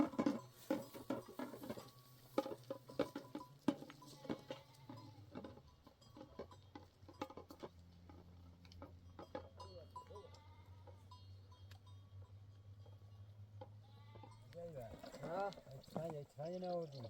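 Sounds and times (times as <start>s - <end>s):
faint livestock bleating: 3.9s - 5.6s, 9.6s - 12.4s, 13.0s - 16.2s.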